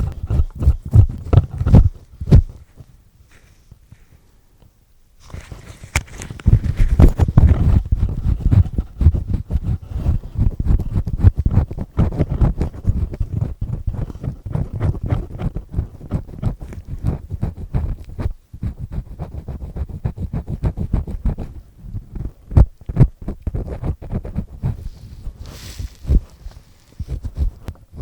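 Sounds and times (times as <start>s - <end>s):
earpick scraping at microphone: 0.0s - 3.7s, 5.2s - 28.0s.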